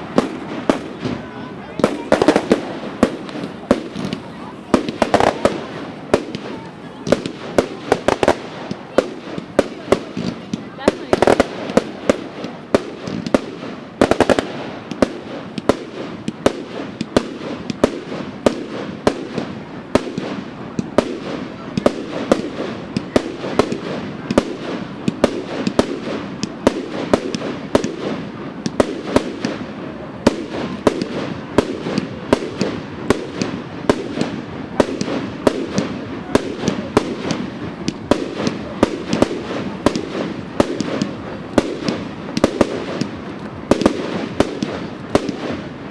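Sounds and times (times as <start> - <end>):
fireworks bangs and cracks: 0.0 - 45.9.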